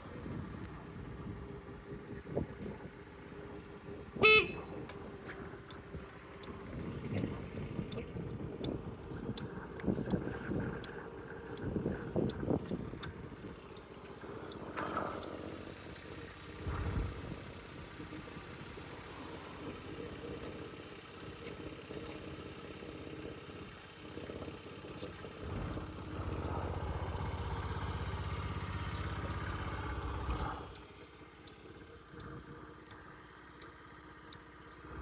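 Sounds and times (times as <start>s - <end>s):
scooter engine idling and revving: 0.0s - 35.0s.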